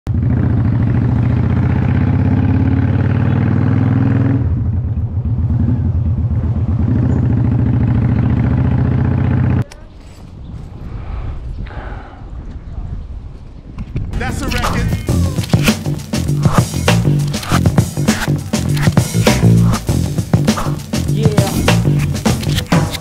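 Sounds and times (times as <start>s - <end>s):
motorcycle engine running: 0.1s - 9.6s.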